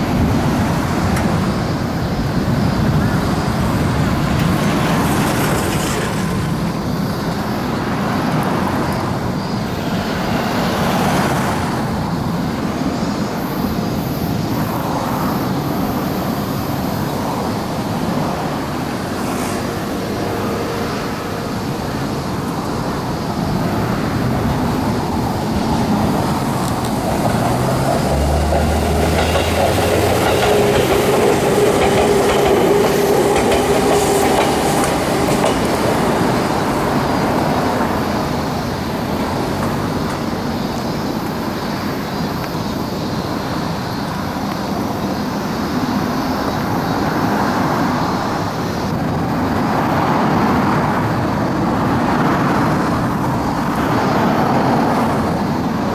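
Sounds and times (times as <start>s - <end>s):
train wheels rumbling on rail: 0.0s - 55.9s
train motors rising tones: 25.8s - 37.9s.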